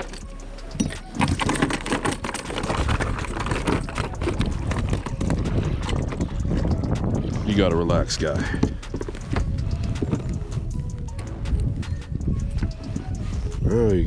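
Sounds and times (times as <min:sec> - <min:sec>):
handling noise: 0:00.0 - 0:13.6.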